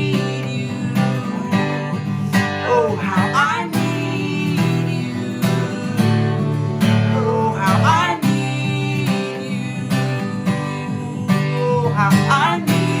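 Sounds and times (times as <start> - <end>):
acoustic guitar strumming: 0.0 - 13.0
person singing wordless phrases: 0.0 - 13.0.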